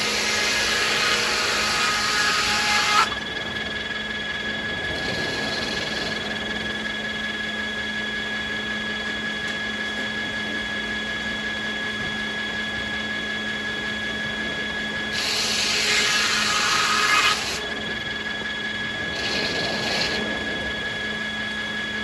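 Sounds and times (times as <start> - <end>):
saw cutting wood: 0.0 - 3.2, 15.1 - 17.7, 19.1 - 20.3
circular saws whining: 0.0 - 22.0
machinery hum: 0.0 - 22.0.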